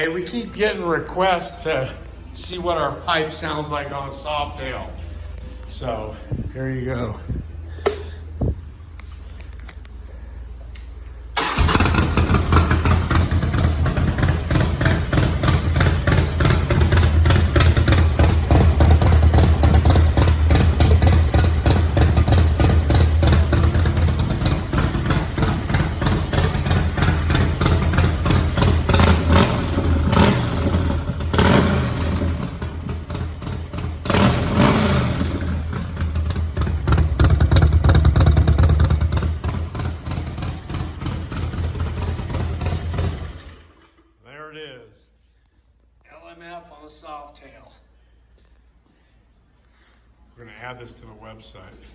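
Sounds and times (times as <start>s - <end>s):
motorcycle engine idling and revving: 11.3s - 43.8s.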